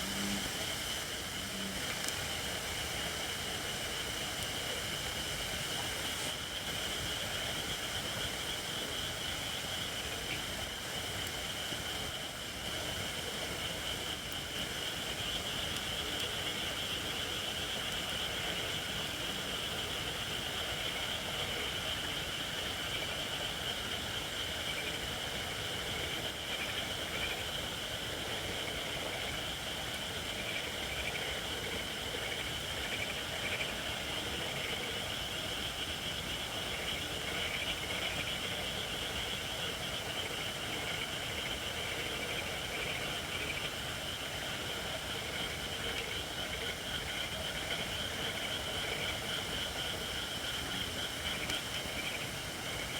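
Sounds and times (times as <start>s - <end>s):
high hiss from logs: 0.0s - 7.4s.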